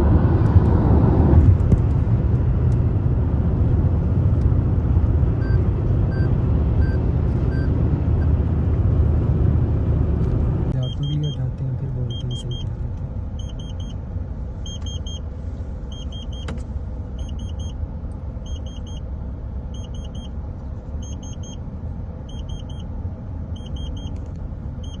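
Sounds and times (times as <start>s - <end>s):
vehicle rumble from inside: 0.0s - 25.0s
electronic warning beeps: 10.7s - 12.7s, 13.4s - 14.0s, 14.6s - 15.2s, 15.9s - 16.5s, 17.2s - 17.8s, 18.4s - 19.0s, 19.7s - 20.3s, 21.0s - 21.6s, 22.3s - 22.9s, 23.5s - 24.2s, 24.8s - 25.0s.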